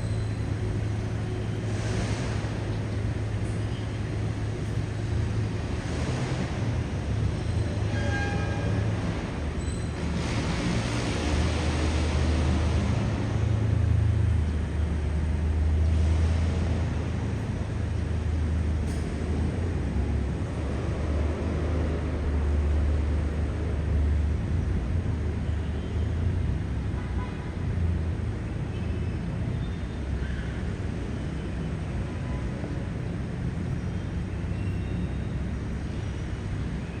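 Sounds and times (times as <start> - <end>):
passing vehicles engine rumble: 0.0 - 26.9
tyre and street noise: 0.0 - 37.0.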